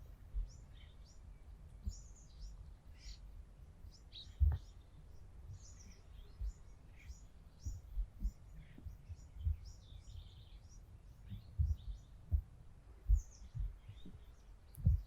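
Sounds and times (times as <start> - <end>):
small birds chirping: 0.0 - 15.0
dull low thumps: 4.4 - 4.7, 7.7 - 10.3, 11.2 - 15.0.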